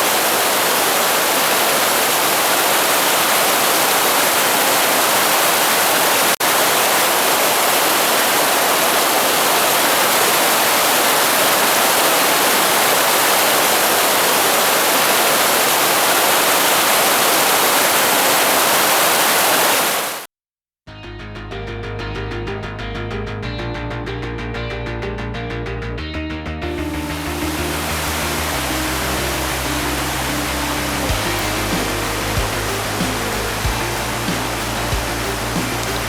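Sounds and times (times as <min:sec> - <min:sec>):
rushing white water stream: 0:00.0 - 0:20.3, 0:27.0 - 0:36.0.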